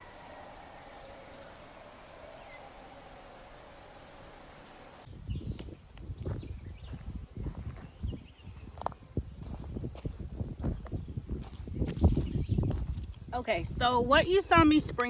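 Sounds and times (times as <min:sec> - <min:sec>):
faint hum: 0:00.0 - 0:05.1
insects trilling: 0:00.0 - 0:05.1.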